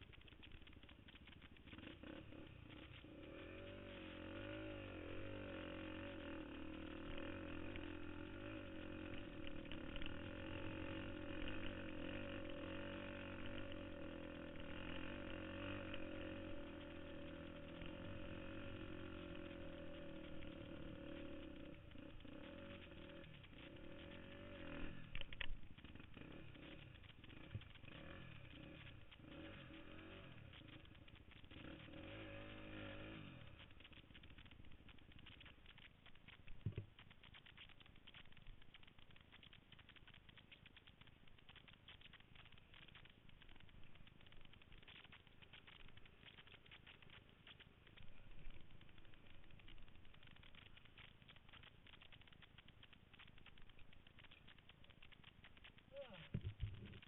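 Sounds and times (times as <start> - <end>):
dirt bike engine revving: 1.3 - 35.9.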